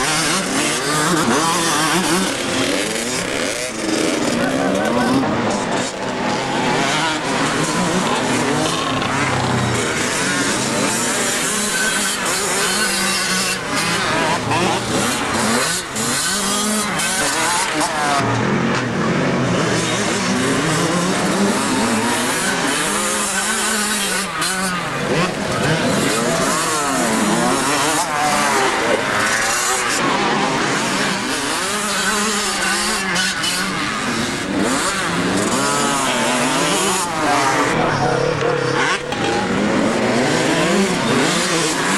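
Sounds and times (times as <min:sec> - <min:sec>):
motocross bike engines revving: 0:00.0 - 0:41.9.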